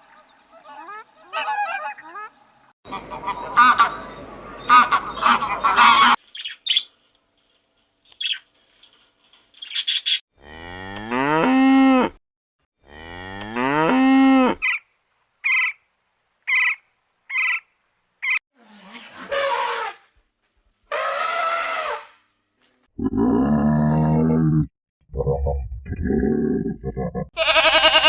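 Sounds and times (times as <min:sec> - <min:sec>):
cow mooing: 0:10.4 - 0:12.2, 0:12.8 - 0:14.6.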